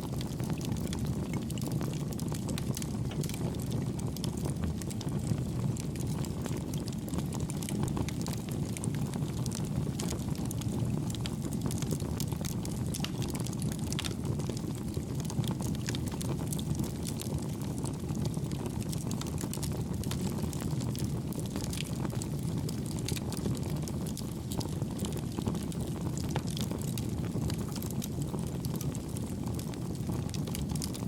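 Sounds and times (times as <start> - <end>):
low rush of flame: 0.1 - 31.0
wood crackling: 2.6 - 3.6, 12.6 - 14.2.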